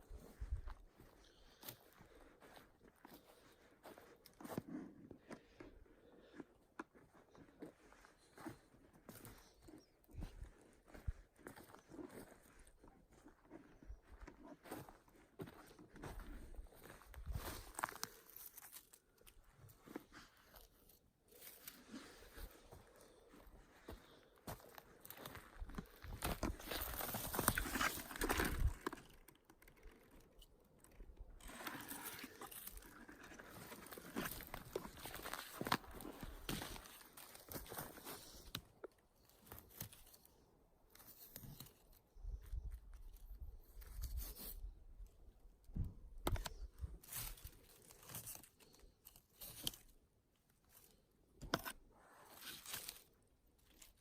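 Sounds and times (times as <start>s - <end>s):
footsteps through dry undergrowth: 0.0s - 40.3s, 46.5s - 49.9s
twigs crackling and rustling: 16.8s - 42.0s, 46.4s - 49.9s, 52.3s - 54.0s.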